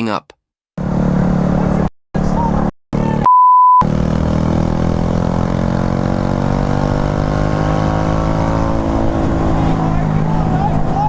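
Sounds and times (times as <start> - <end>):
censor bleep: 3.2 - 3.8
motorcycle engine running: 3.8 - 11.0.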